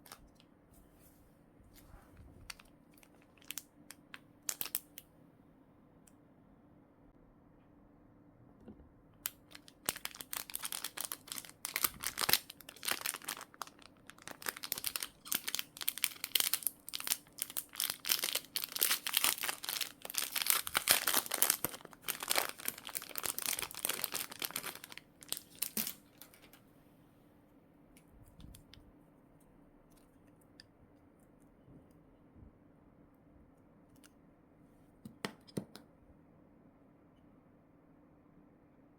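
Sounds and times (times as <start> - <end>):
plastic packaging crinkling: 2.5 - 5.0, 9.2 - 26.6.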